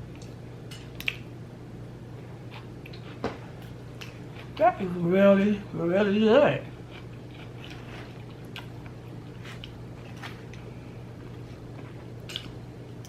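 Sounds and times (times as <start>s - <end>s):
steady low hum: 0.0s - 13.0s
person chewing wetly: 2.5s - 4.6s, 6.8s - 13.0s.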